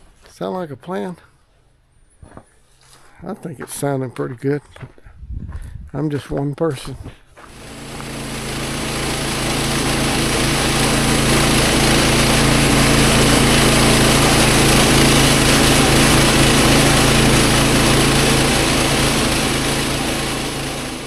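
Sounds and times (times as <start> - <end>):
saw blade hissing through log: 7.5 - 21.0
sawmill engine running: 7.5 - 21.0.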